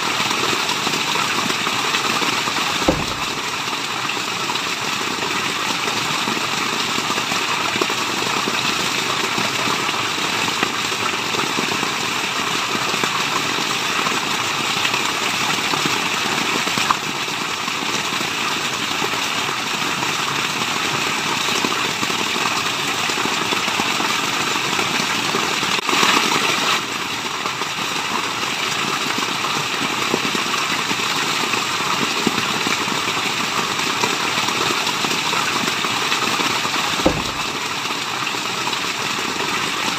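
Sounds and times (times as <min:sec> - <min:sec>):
falling water rushing: 0:00.0 - 0:05.7, 0:35.1 - 0:39.9.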